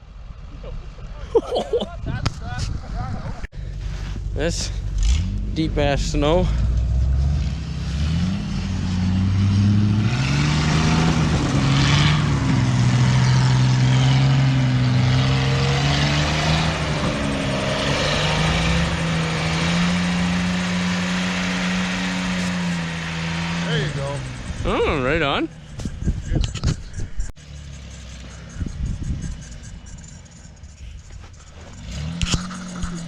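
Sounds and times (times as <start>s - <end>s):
truck engine revving hard: 4.5s - 26.1s, 27.4s - 33.0s.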